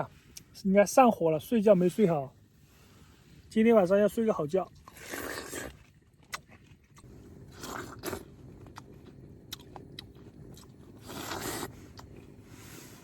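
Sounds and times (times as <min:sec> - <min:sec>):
person chewing watermelon: 0:04.6 - 0:12.4.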